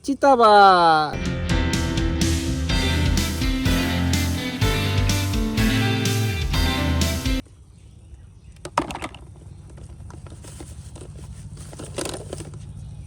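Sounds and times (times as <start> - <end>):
guitar background music: 1.2 - 7.4.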